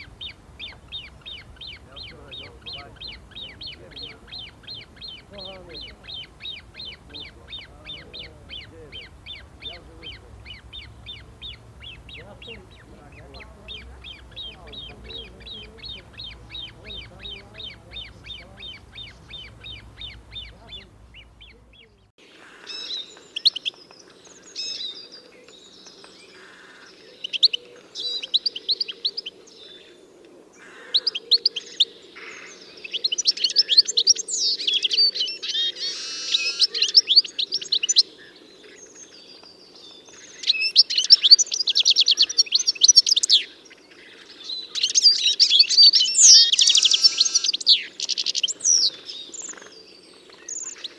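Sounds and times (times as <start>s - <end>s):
steady low noise: 0.0s - 22.1s
bird song in quick phrases: 0.0s - 30.0s, 30.8s - 50.9s
bird chirping: 0.0s - 50.9s.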